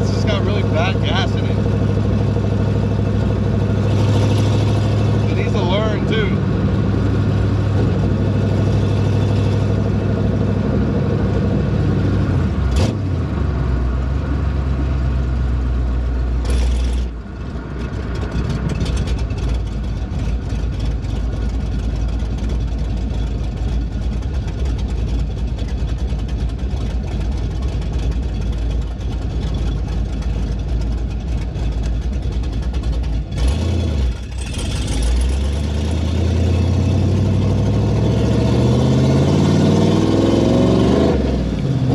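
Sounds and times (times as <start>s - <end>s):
loud car engine accelerating: 0.0s - 22.7s, 32.7s - 41.9s.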